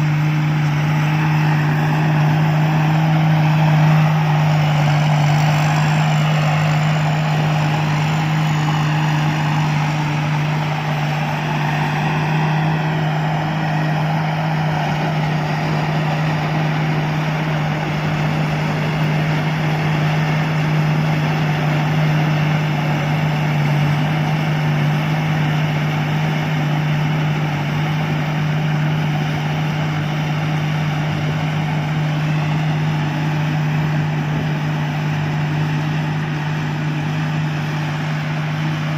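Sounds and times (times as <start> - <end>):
combine harvester engine running: 0.0 - 38.9.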